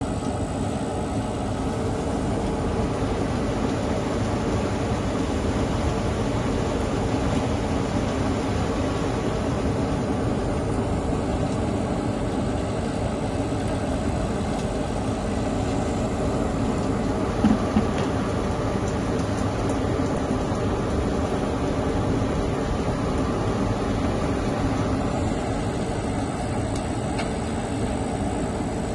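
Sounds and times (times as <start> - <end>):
rotary drum dryer drone: 0.0 - 28.9.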